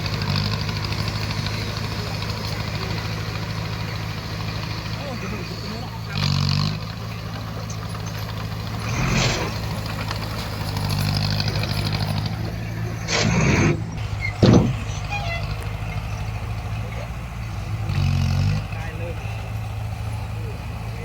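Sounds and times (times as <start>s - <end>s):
bulldozer diesel engine running: 0.0s - 21.0s
short noisy rushes: 8.8s - 10.1s, 11.9s - 15.3s.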